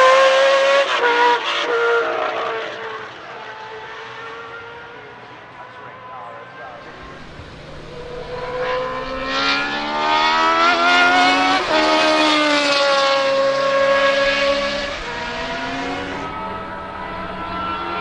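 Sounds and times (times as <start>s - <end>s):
race car engine passing by: 6.8s - 18.0s.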